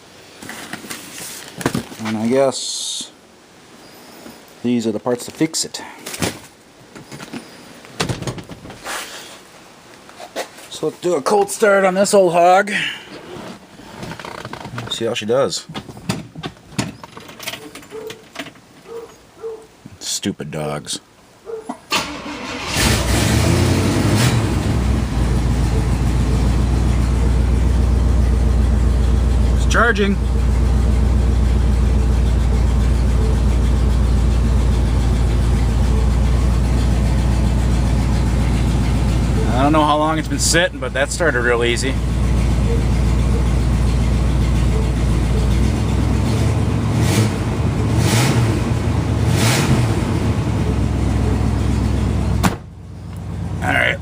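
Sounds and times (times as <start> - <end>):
car engine revving and idling: 22.4 - 54.0.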